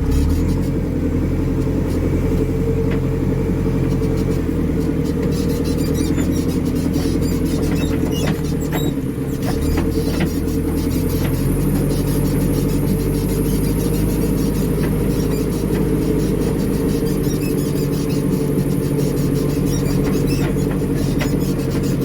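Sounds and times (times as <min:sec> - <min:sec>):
diesel engine running: 0:00.0 - 0:22.0
machine rattling and knocking: 0:05.7 - 0:22.0.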